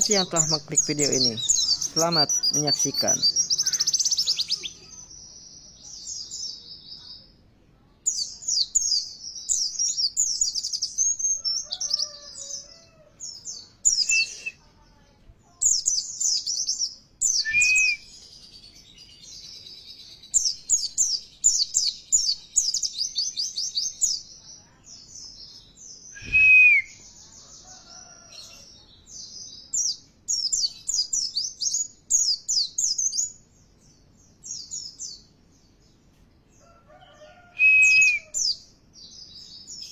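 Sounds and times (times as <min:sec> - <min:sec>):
high-pitched bird twittering: 0:00.0 - 0:05.1, 0:13.3 - 0:14.6, 0:15.6 - 0:24.2.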